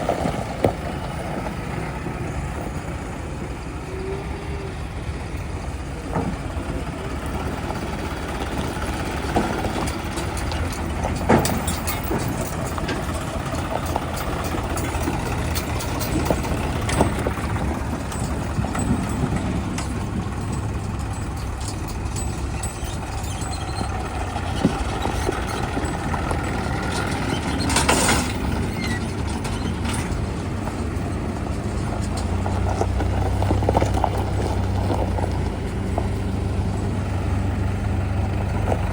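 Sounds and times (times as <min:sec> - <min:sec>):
diesel engine running: 0:00.0 - 0:38.9
sharp metallic clanks: 0:08.5 - 0:35.1.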